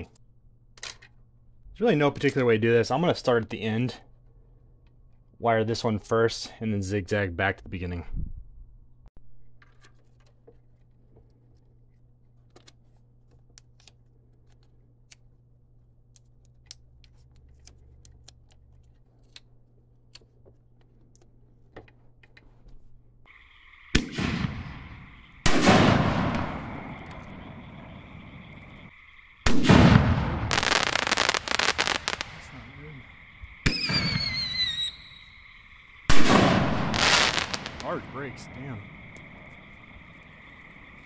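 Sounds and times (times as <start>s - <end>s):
rapid crackling cracks: 23.3s - 41.0s
firework shell booms: 23.9s - 28.8s, 29.5s - 32.7s, 33.5s - 35.2s, 36.0s - 38.7s.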